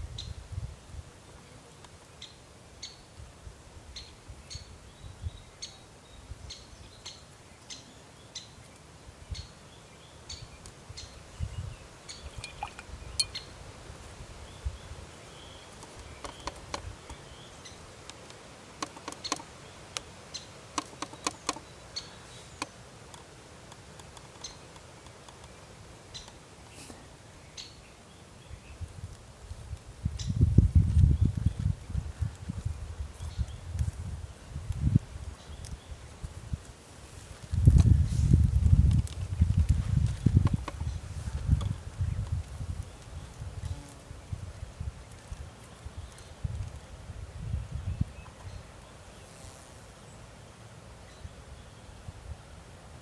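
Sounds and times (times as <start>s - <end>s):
small bird chirping: 9.3s - 13.6s.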